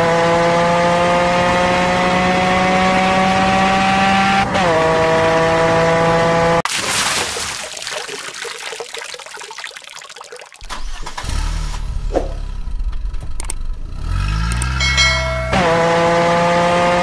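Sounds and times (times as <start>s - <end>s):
car engine starting and idling: 10.6s - 16.2s.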